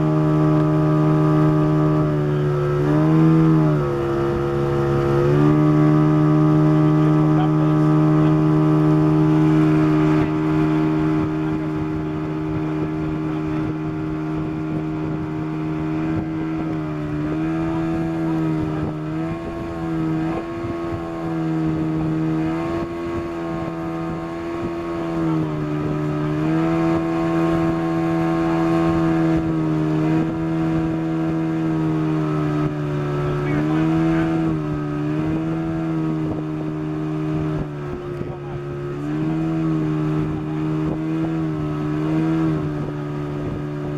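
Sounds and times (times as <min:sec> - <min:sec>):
boat engine droning: 0:00.0 - 0:43.9.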